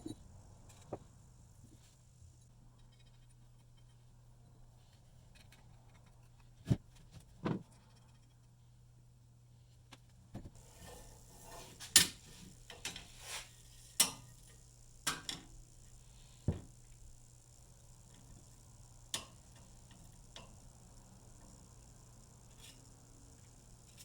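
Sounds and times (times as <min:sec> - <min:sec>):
faint hiss: 0:10.6 - 0:24.0
tools knocking on a workbench: 0:16.5 - 0:16.7.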